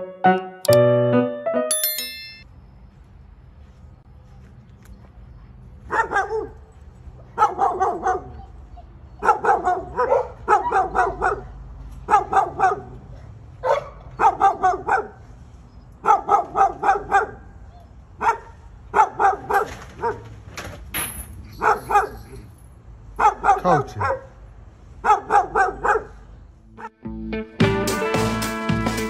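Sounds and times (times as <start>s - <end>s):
piano notes: 0.0s - 2.4s
dog barking: 5.9s - 6.7s, 7.3s - 15.2s, 16.0s - 17.6s, 18.2s - 20.3s, 21.6s - 22.4s, 23.2s - 24.4s, 25.0s - 26.2s.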